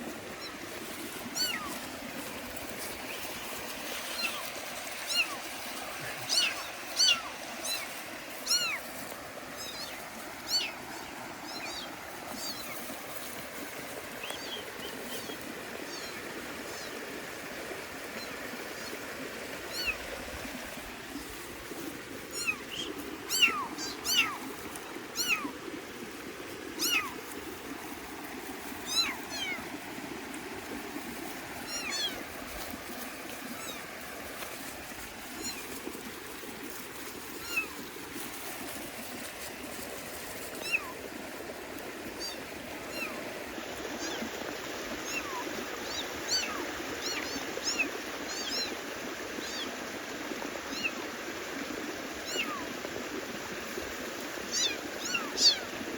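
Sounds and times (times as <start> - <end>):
kittens mewing: 6.0 - 7.8.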